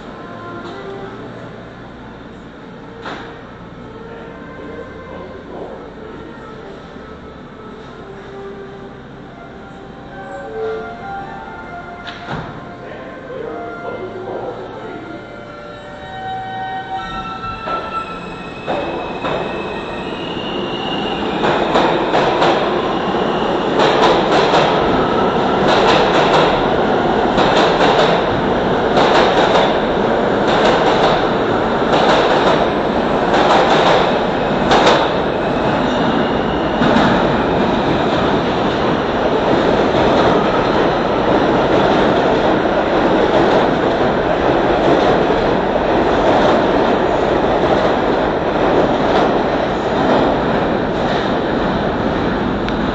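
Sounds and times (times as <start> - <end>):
train wheels rumbling on rails: 16.9 - 52.9.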